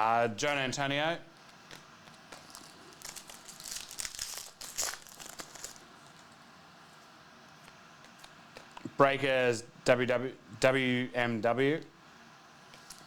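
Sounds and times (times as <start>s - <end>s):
foil wrapper crinkling and tearing: 1.7s - 6.4s.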